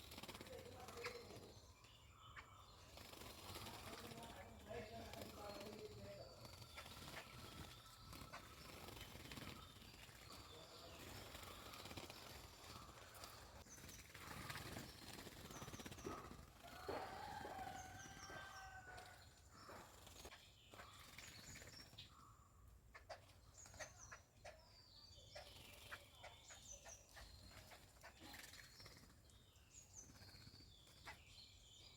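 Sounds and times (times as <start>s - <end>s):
small birds chirping: 0.0s - 31.9s.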